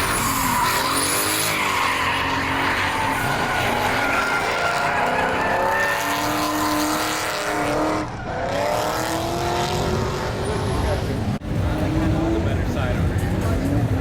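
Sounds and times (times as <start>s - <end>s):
tyre screech: 0.0s - 9.0s
car engine revving hard: 0.0s - 14.0s.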